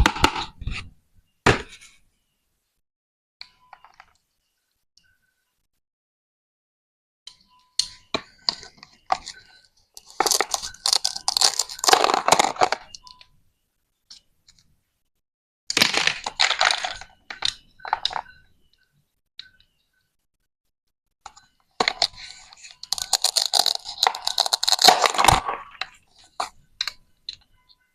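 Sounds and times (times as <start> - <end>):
plastic pieces crackling apart: 10.0 - 12.9, 15.7 - 17.1, 21.8 - 26.5
plastic toy clicks and knocks: 10.0 - 13.0, 21.3 - 27.4.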